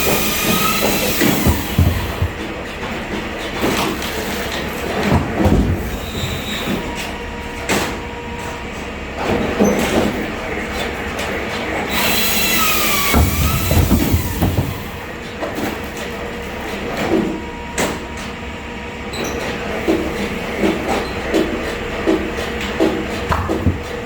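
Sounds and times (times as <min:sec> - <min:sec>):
irregular knocks: 0:00.1 - 0:04.0, 0:13.0 - 0:15.0, 0:23.3 - 0:24.0.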